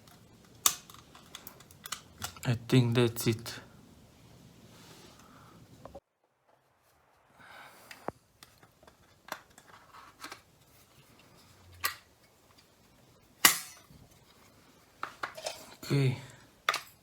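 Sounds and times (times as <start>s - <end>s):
plastic switch parts clicking: 0.0s - 2.5s.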